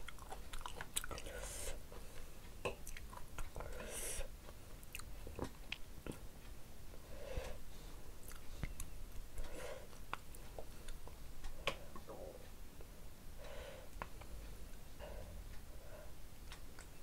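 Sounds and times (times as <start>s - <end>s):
person chewing food: 0.0s - 6.3s, 8.2s - 12.1s, 16.4s - 17.0s.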